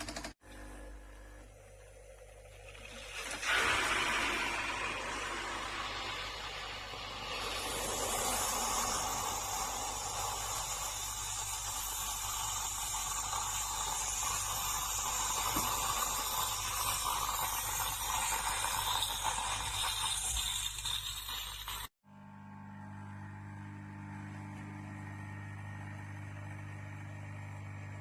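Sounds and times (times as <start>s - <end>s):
coffee machine hissing: 0.0s - 28.0s
liquid pouring into cup: 2.4s - 10.4s.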